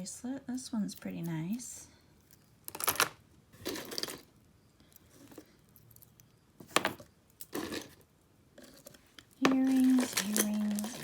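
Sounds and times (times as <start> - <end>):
jewelry clinking and jangling: 2.2 - 4.3, 4.9 - 8.0, 8.6 - 11.0.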